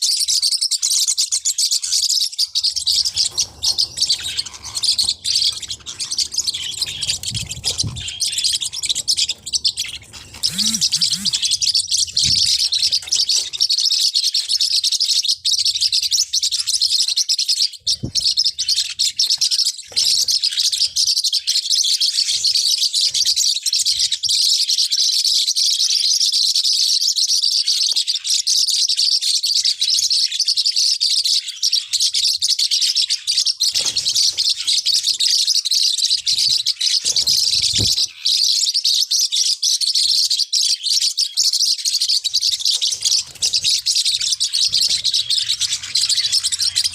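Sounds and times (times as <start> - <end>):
parrotlets chirping: 0.2 - 24.2, 32.8 - 46.9.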